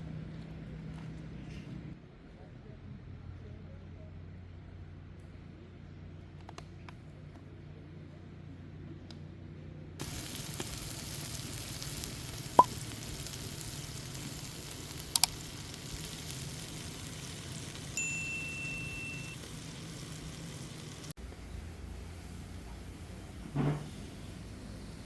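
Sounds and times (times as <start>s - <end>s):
food sizzling in a pan: 10.0s - 25.0s
short ringing tone: 18.0s - 19.5s.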